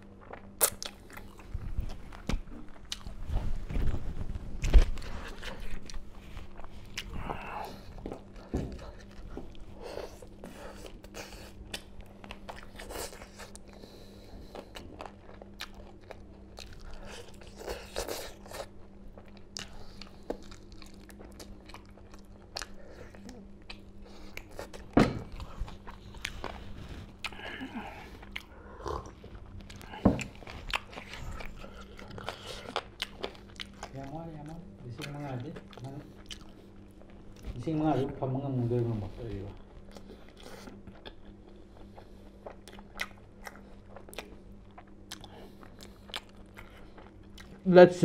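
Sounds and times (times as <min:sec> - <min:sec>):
crunchy biting and wet chewing: 0:00.0 - 0:03.9, 0:04.6 - 0:37.7, 0:39.1 - 0:47.7
faint low hum: 0:00.0 - 0:48.0.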